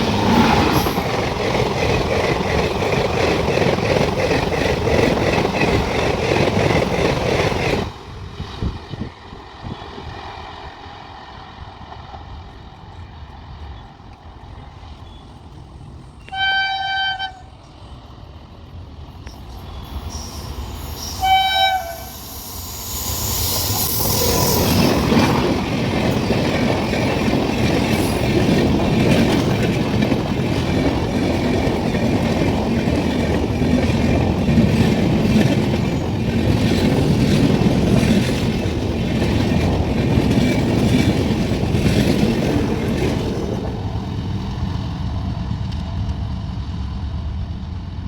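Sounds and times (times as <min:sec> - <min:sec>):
train wheels clattering on rails: 0:00.0 - 0:08.0, 0:22.4 - 0:46.7
rumble of approaching train: 0:00.0 - 0:48.0
locomotive horn blasts: 0:16.3 - 0:17.5, 0:21.0 - 0:22.2.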